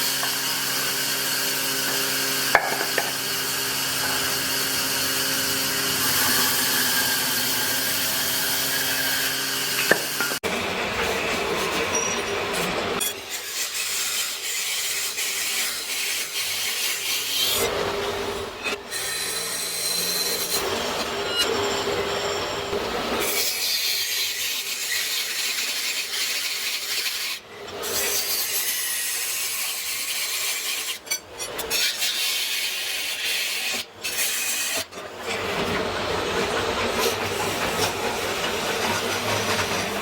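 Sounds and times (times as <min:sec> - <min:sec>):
tool rasping against wood: 0:35.2 - 0:40.0.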